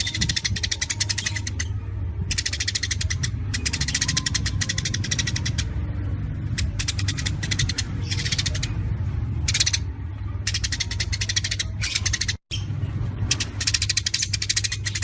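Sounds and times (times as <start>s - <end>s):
songbird rapid staccato notes: 2.3s - 5.8s, 6.4s - 8.8s, 9.5s - 12.4s, 13.3s - 15.0s.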